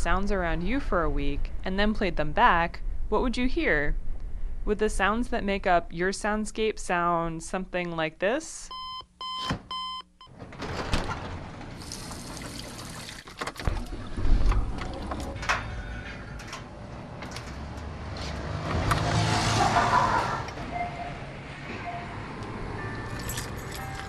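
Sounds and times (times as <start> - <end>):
low rumble: 0.0 - 5.5
water running and pouring: 11.8 - 14.4.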